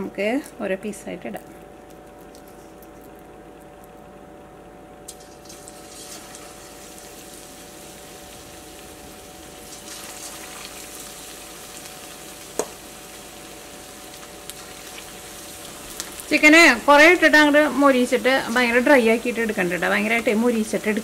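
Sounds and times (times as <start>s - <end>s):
food sizzling in hot oil: 5.1s - 21.0s.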